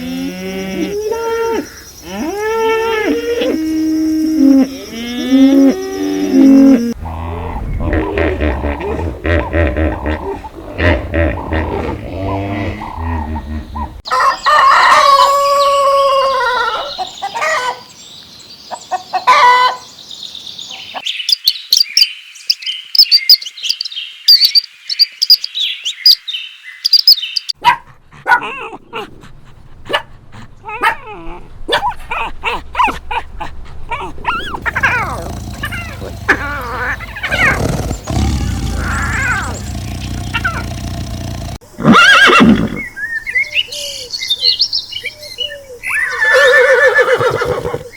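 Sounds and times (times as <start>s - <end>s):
birds chirping and twittering: 16.6s - 27.6s, 34.3s - 41.6s
animal calls: 33.9s - 42.9s, 45.9s - 47.9s
loud wavering animal call: 34.5s - 42.8s.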